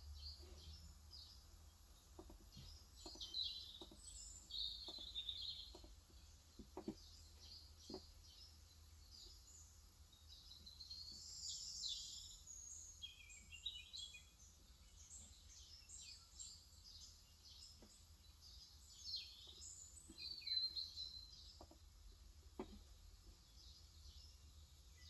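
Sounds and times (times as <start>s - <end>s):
small birds chirping: 0.0s - 25.0s
faint taps: 2.1s - 4.2s, 4.8s - 8.1s, 21.6s - 21.9s, 22.5s - 22.9s.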